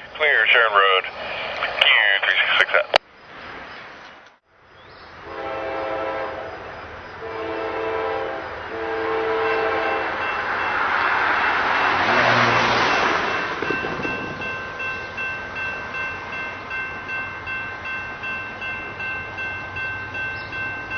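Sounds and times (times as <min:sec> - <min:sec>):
rail noise rushing: 0:00.0 - 0:20.9
locomotive engine passing: 0:05.1 - 0:20.9
locomotive horn blasts: 0:05.2 - 0:10.3.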